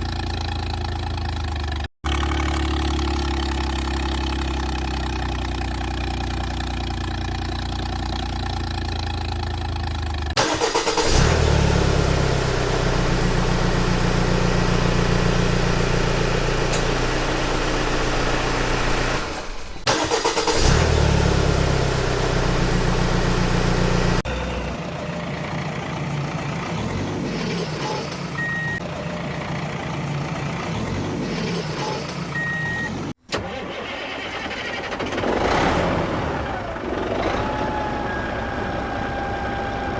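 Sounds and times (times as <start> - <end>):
vehicle engine starting and running: 0.0 - 39.9.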